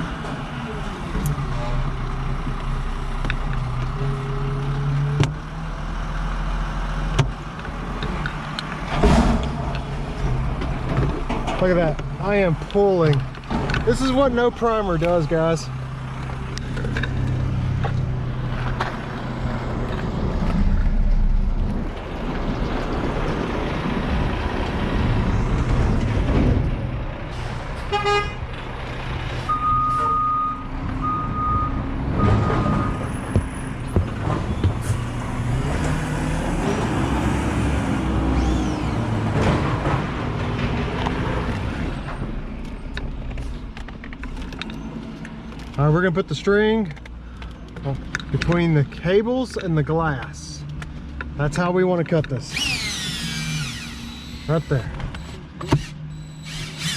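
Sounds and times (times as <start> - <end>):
vehicle engine rumble: 0.0 - 56.9
electronic beeps: 56.1 - 56.5.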